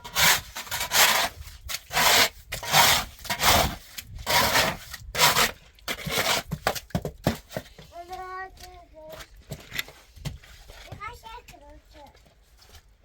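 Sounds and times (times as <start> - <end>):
rasping scrapes: 0.0 - 6.8.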